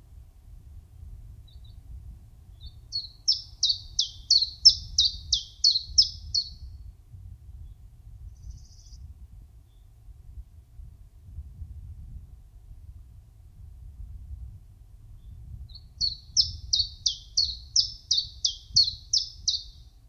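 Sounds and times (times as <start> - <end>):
faint bird chirps: 2.5 - 6.9, 7.6 - 9.1, 15.2 - 20.0
songbird singing high notes: 2.6 - 6.6, 15.7 - 19.8.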